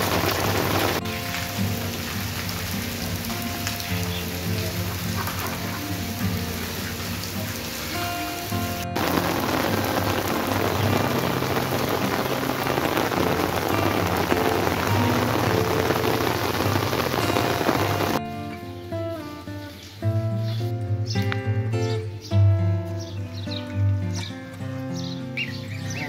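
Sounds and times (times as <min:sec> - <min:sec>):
heavy rain falling: 0:00.0 - 0:18.2.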